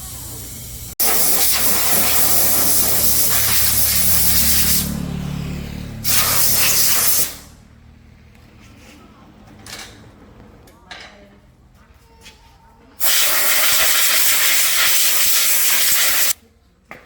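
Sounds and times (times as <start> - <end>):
high-pressure jet hissing: 0.0 - 5.0, 6.0 - 7.6, 13.0 - 16.4.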